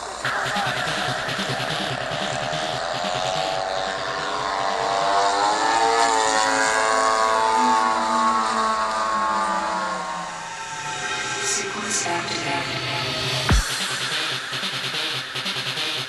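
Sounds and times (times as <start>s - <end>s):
model airplane propeller engine: 0.0s - 10.6s.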